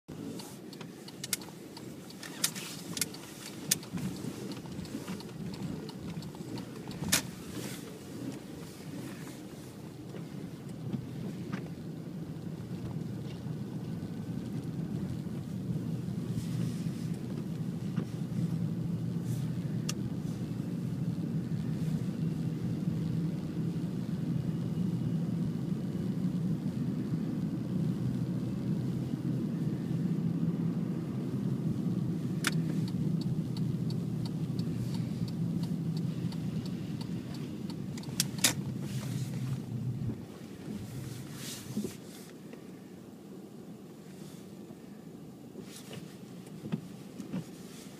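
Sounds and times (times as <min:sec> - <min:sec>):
low rumble: 0:03.8 - 0:41.9
sharp clicks: 0:32.4 - 0:38.6.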